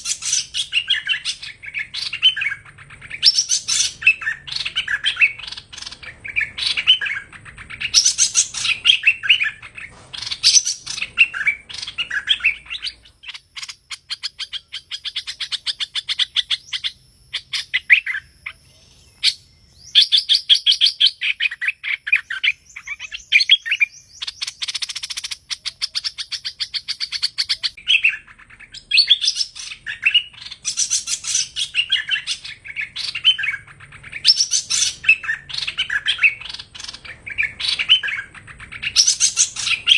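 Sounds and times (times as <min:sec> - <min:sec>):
bird rattling trills: 0:00.0 - 0:13.8
birds chirping: 0:00.0 - 0:39.9.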